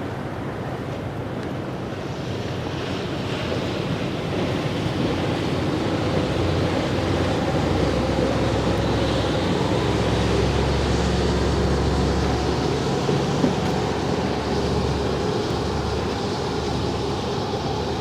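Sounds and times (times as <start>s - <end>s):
low ship engine drone: 0.0s - 18.0s
wind and water rushing: 0.0s - 18.0s.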